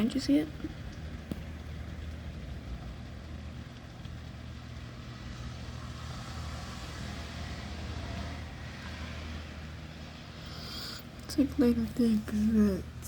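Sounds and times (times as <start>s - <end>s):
steady rain: 0.0s - 10.2s
low rumble of street traffic: 0.0s - 13.0s
car tyres hissing on wet road: 4.8s - 11.0s.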